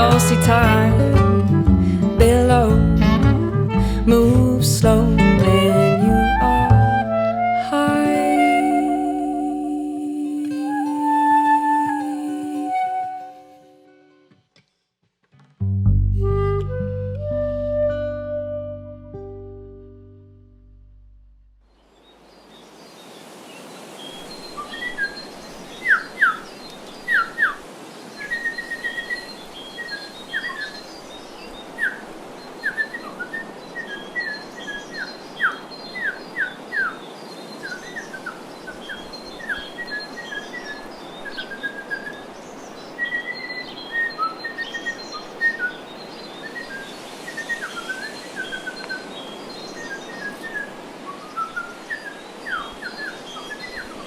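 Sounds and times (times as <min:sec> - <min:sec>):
songbirds chirping: 0:21.7 - 0:54.0
background hiss: 0:21.8 - 0:54.0.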